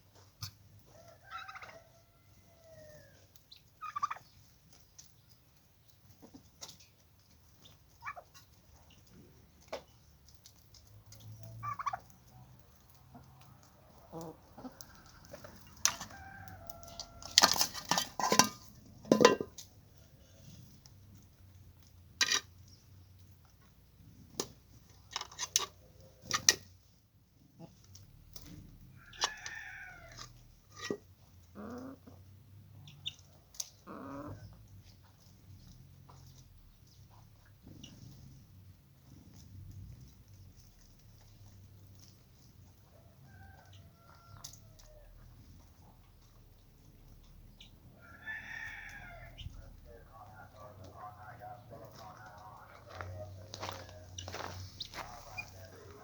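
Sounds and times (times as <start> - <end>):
chickens clucking: 0.1 - 56.0.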